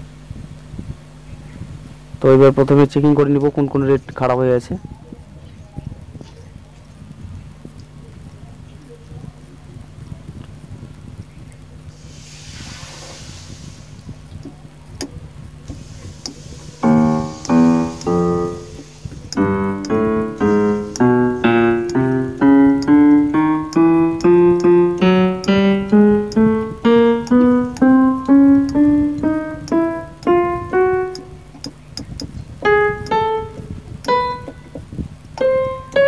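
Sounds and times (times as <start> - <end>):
electronic keyboard piano notes: 15.7 - 36.0.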